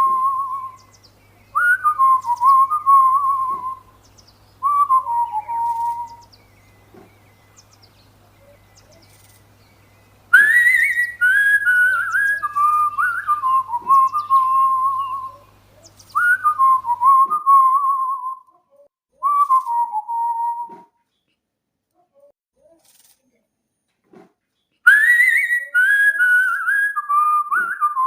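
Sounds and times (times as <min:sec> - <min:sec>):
cockatiel whistling: 0:01.6 - 0:03.8, 0:04.6 - 0:06.2, 0:10.3 - 0:15.4, 0:16.1 - 0:18.4, 0:24.9 - 0:28.0.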